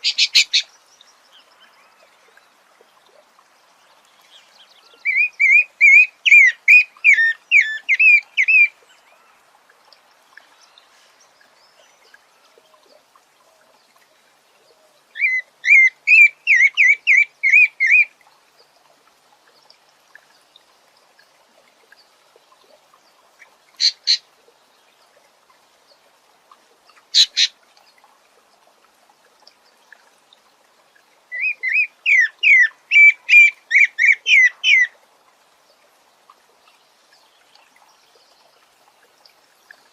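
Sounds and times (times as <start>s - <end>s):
bird whistling song: 0.0s - 0.7s, 5.1s - 8.7s, 15.2s - 18.1s, 31.3s - 34.9s.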